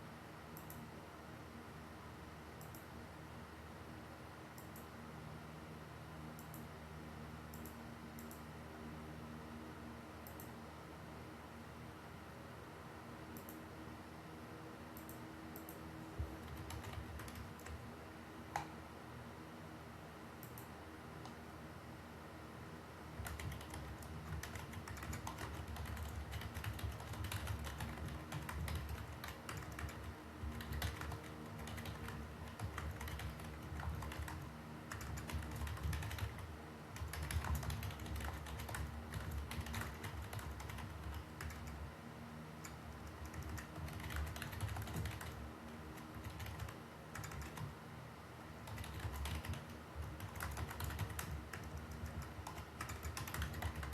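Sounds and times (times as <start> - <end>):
typing on computer keyboard: 15.0 - 17.8, 23.2 - 41.8, 42.6 - 47.7, 48.6 - 53.9.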